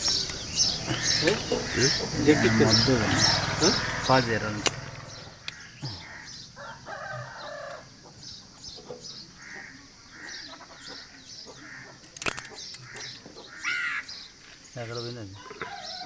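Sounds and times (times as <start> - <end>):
chickens clucking: 0.0 - 6.3, 7.0 - 13.6.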